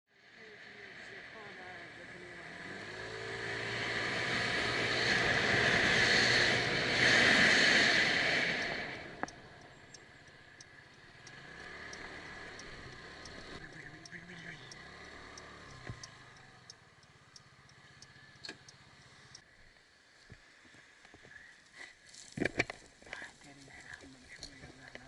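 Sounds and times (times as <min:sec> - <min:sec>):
vehicle engine: 0:00.2 - 0:19.5
faint ticking: 0:07.4 - 0:19.8.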